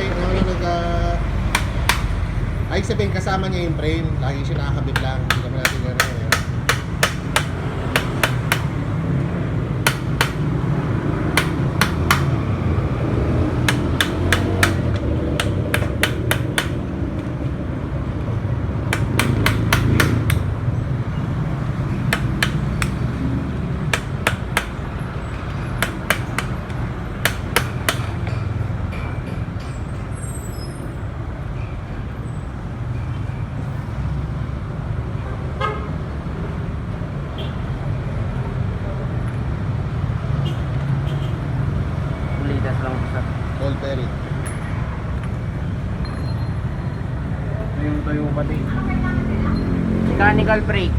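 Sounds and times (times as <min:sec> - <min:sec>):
traffic rumble: 0:00.0 - 0:50.9
hammer blows on metal: 0:01.5 - 0:02.2, 0:05.0 - 0:08.9, 0:09.8 - 0:17.0, 0:18.9 - 0:20.6, 0:21.9 - 0:28.3.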